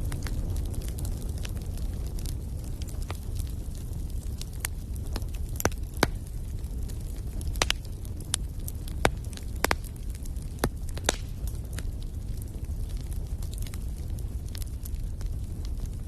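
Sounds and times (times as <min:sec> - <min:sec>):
wood fire crackling: 0:00.0 - 0:16.0
sharp pops and snaps: 0:07.5 - 0:07.9, 0:08.9 - 0:10.0, 0:10.6 - 0:11.6.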